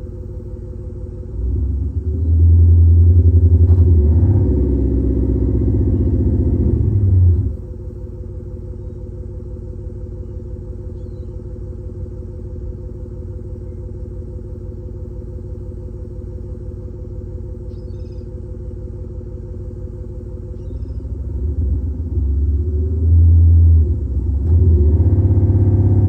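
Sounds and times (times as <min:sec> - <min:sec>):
car exhaust idle burble revving: 0:00.0 - 0:26.0.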